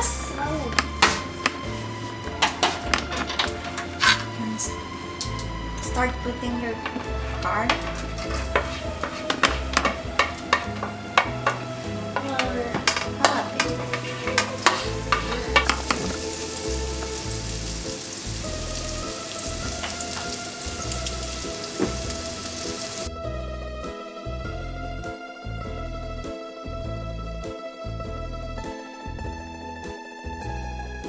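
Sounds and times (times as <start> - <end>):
background music: 0.0 - 31.0
garlic sizzling in oil: 7.9 - 23.1.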